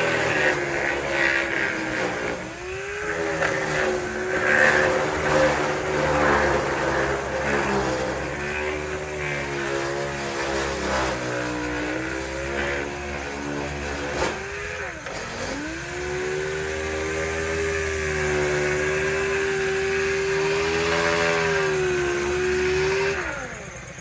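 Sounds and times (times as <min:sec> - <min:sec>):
power tool motor whining: 0:00.0 - 0:24.0
scratchy sanding hiss: 0:00.0 - 0:24.0.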